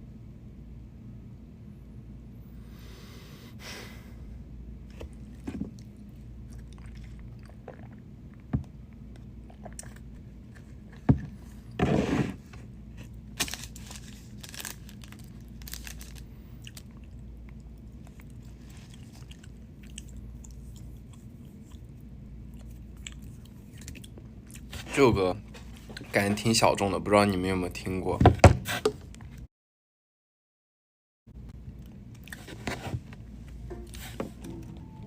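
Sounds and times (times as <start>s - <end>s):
steady low hum: 0.0s - 29.5s, 31.3s - 35.0s
person chewing a burger: 4.9s - 11.6s, 12.8s - 24.9s, 31.6s - 32.7s.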